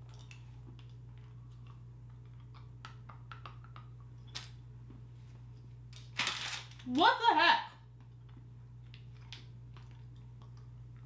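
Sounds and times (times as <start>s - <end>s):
person chewing a fruit chew: 0.0s - 5.1s, 8.0s - 11.0s
steady low hum: 0.0s - 11.0s.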